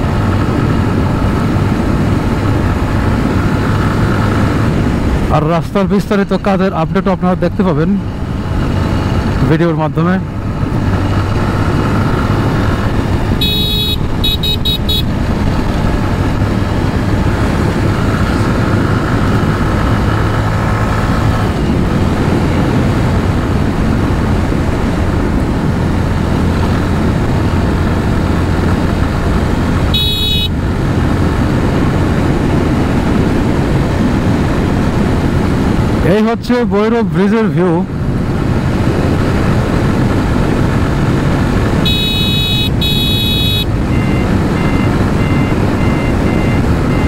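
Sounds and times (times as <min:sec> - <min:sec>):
motorcycle engine drone: 0:00.0 - 0:36.6, 0:37.6 - 0:47.0
wind and road noise: 0:00.0 - 0:47.0
vehicle horn tooting: 0:13.4 - 0:15.1, 0:29.9 - 0:30.6, 0:41.8 - 0:43.7.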